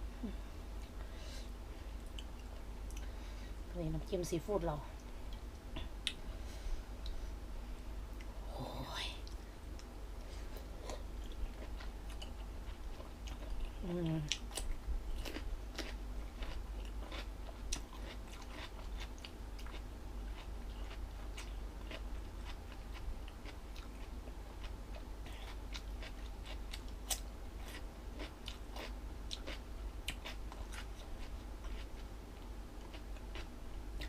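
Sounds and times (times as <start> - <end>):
steady low hum: 0.0 - 34.0
person chewing crunchy food: 10.5 - 32.1, 32.8 - 34.0.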